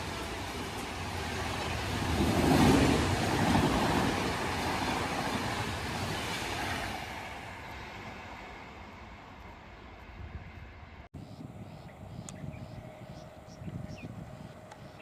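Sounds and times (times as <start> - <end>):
train passing at speed: 0.0 - 11.8.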